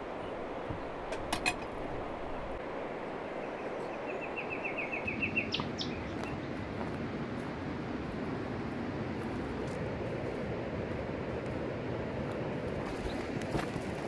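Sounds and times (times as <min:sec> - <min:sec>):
steady rushing background noise: 0:00.0 - 0:14.0
songbird trilling: 0:04.0 - 0:06.2.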